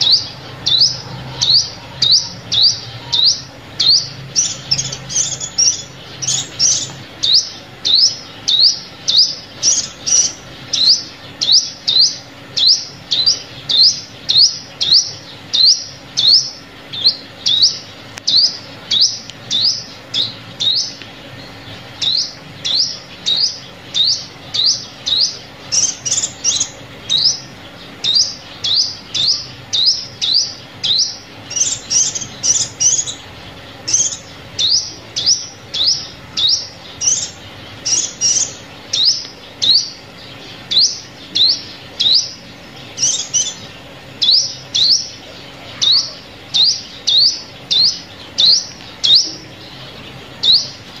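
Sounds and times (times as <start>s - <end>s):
sunbird call: 0.0s - 51.0s.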